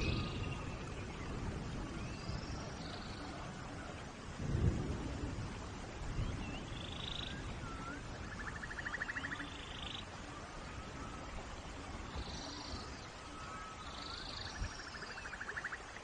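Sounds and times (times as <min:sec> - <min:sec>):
thunder rumble: 0:00.0 - 0:08.8
steady rain: 0:00.0 - 0:16.0
whistled animal calls: 0:06.5 - 0:11.3.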